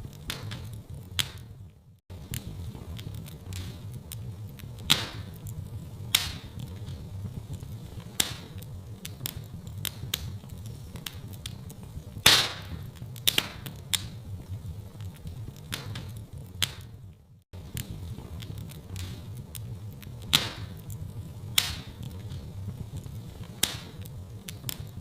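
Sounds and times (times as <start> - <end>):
low steady rumble: 0.0 - 25.0
wood fire crackling and popping: 0.0 - 25.0.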